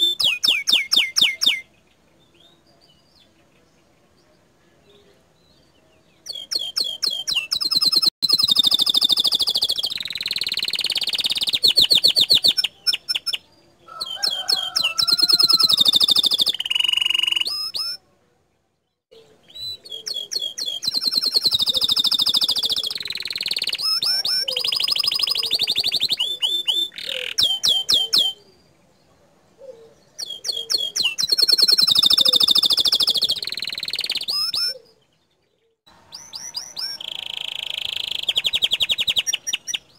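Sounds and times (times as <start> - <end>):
canary singing trills: 0.0 - 4.5, 5.1 - 18.1, 18.8 - 39.9.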